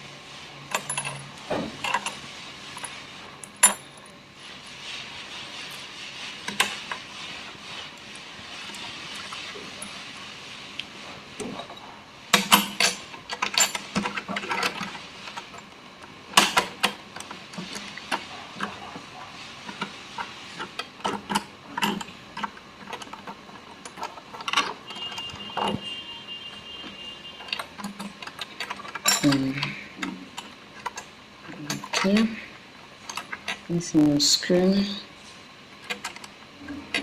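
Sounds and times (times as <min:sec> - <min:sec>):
small metal parts clicking: 0:27.4 - 0:32.3.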